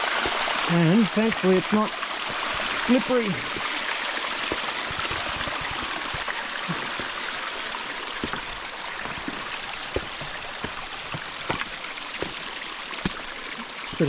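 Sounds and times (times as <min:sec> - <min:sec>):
stream rushing over rocks: 0:00.0 - 0:14.0
soft low thumps: 0:02.2 - 0:13.4.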